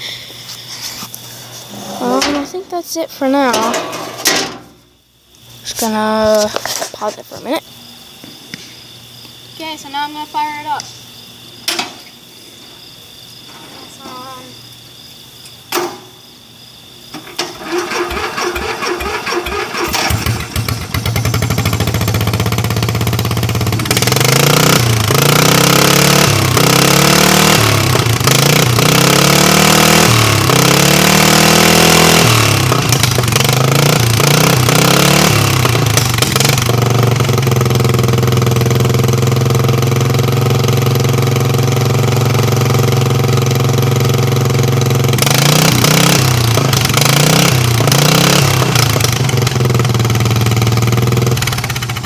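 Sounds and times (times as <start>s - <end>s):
loud unmuffled engine revving: 17.6s - 52.0s.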